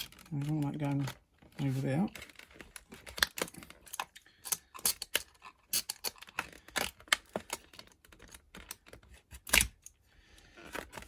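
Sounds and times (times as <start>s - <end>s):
lock and packaging clicking: 2.2s - 9.9s.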